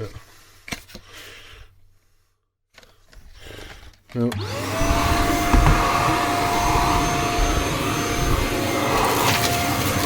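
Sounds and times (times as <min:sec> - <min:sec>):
vacuum cleaner motor whine: 0:04.4 - 0:10.0.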